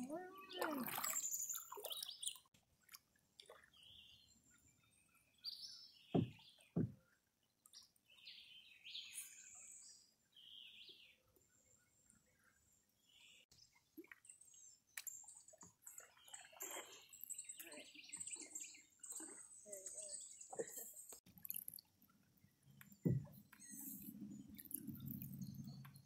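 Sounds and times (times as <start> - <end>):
dull thumps: 6.2 - 7.0, 23.0 - 23.4.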